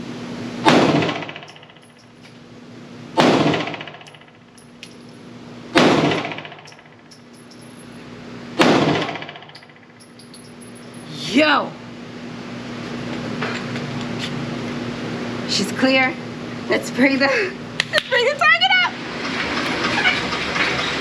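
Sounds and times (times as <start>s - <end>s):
pistol shots echoing indoors: 3.2s - 4.2s, 8.6s - 9.6s.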